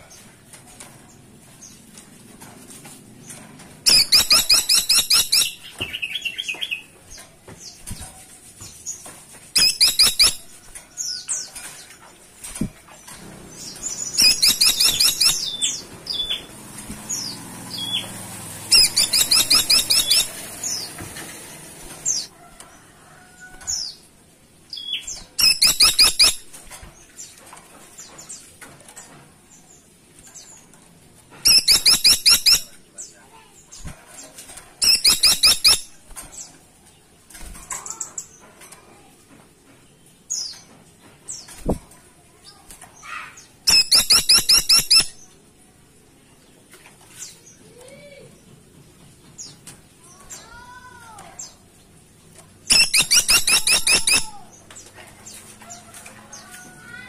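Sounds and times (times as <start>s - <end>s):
woodpecker rattling trills: 3.9s - 5.7s, 13.7s - 16.5s, 18.7s - 20.8s, 31.5s - 32.7s, 34.8s - 36.0s, 43.7s - 45.2s, 52.7s - 54.5s
single bird chirps: 14.2s - 16.4s, 52.7s - 54.3s.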